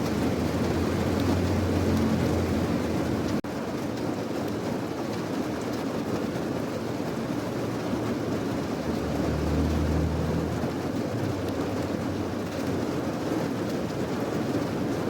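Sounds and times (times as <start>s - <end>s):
steady rain hiss: 0.0s - 3.4s.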